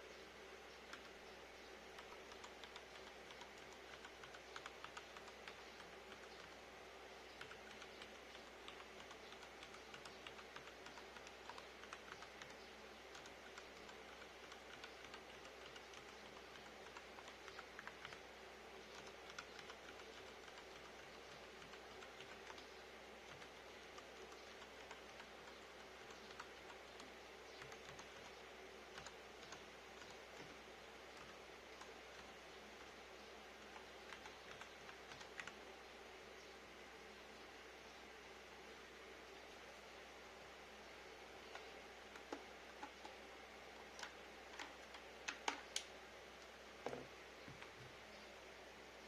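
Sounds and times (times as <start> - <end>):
low steady hum: 0.0 - 49.0
keyboard keystrokes: 44.0 - 45.9.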